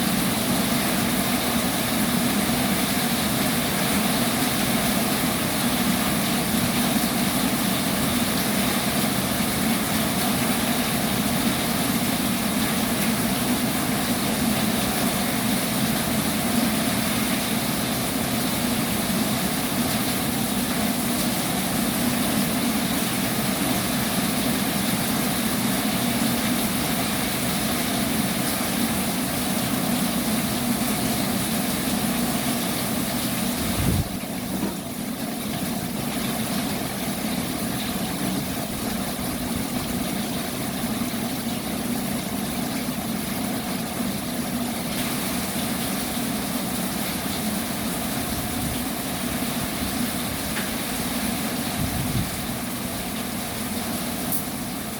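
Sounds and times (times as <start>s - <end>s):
heavy rain pouring: 0.0s - 54.9s.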